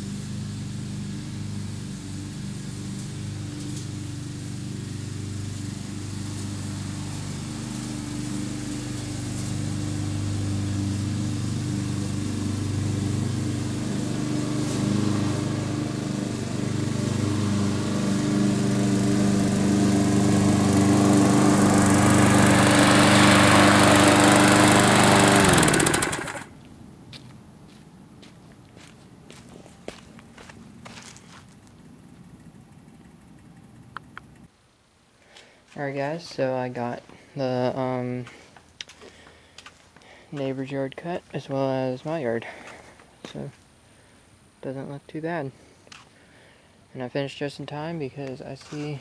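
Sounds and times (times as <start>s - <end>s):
lawn mower engine running: 0.0s - 26.7s.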